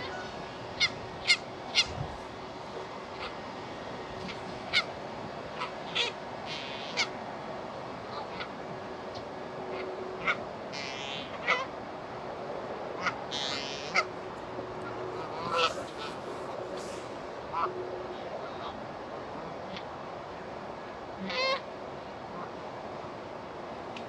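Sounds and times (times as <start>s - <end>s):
birds giving sharp calls: 0.0s - 2.2s, 5.5s - 7.2s, 15.1s - 17.7s
steady background hum: 0.0s - 24.0s.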